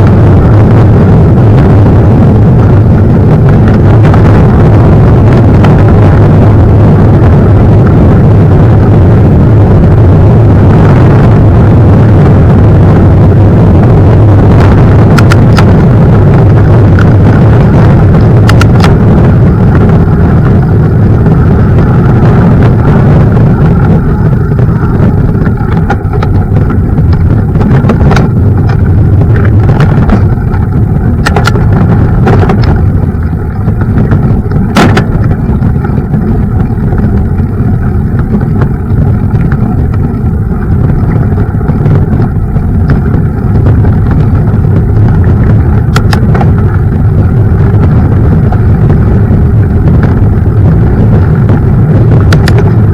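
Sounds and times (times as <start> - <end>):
mountain bike rumbling on rough path: 0.0 - 52.9
sharp knocks and rattles: 25.4 - 37.2.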